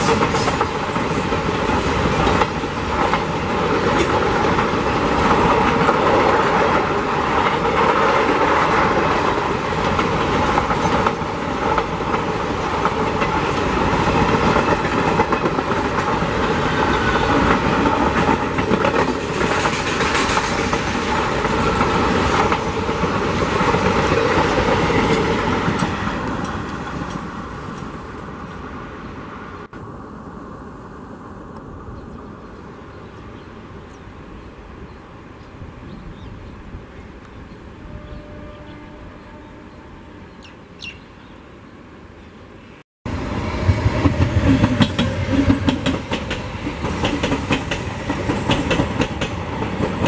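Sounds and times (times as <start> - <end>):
train wheels clattering on rails: 0.0 - 27.9, 43.6 - 50.0.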